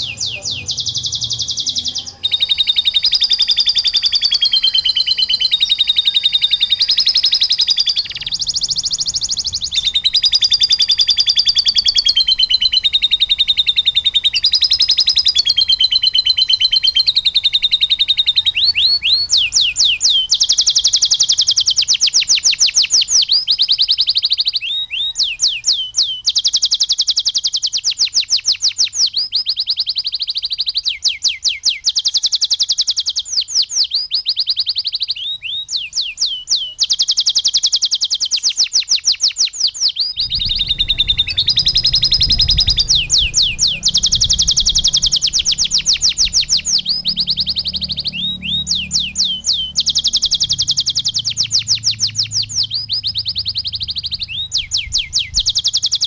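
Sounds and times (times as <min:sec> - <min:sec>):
canary singing trills: 0:00.0 - 0:56.0
low hum: 0:40.2 - 0:55.5.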